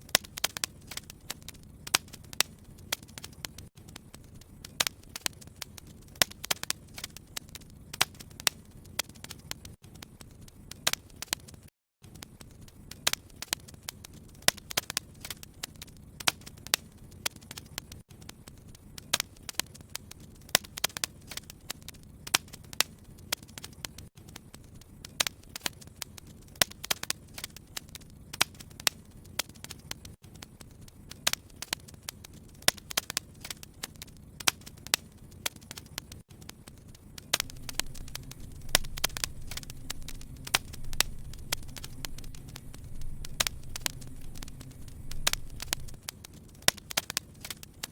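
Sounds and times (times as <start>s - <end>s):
wood fire crackling and popping: 0.0s - 47.9s
low steady rumble: 37.4s - 46.0s.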